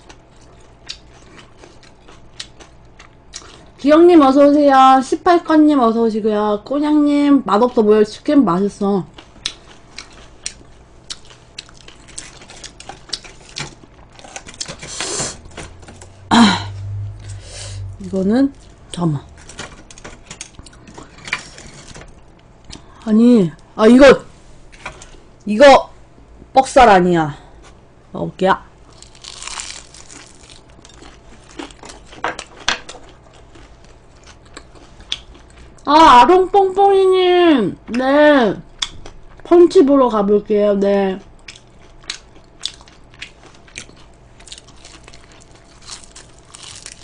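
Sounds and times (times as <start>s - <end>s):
crunching fried chicken: 0.0s - 3.8s, 9.1s - 16.0s, 28.8s - 35.9s, 41.2s - 47.0s.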